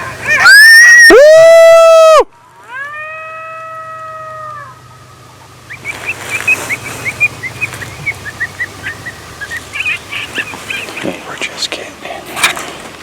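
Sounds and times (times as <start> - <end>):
low steady hum: 0.0 - 13.0
short high chirping calls: 5.6 - 11.1.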